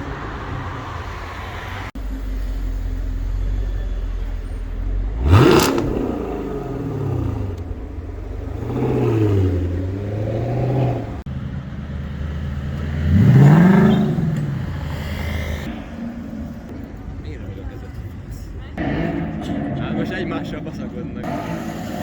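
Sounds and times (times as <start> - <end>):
sports car engine revving: 4.8 - 16.7, 18.8 - 22.0.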